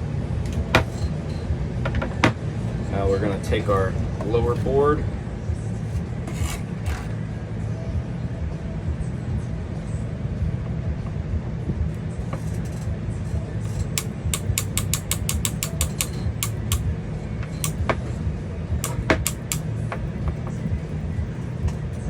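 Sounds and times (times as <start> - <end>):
fan humming: 0.0 - 22.0
solenoid clicking: 13.8 - 18.0, 18.8 - 19.7.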